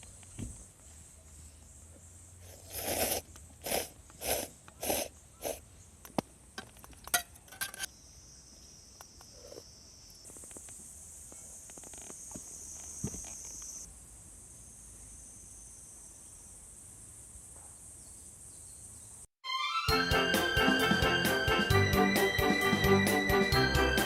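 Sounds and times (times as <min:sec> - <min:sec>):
insects chirring: 0:01.5 - 0:19.2.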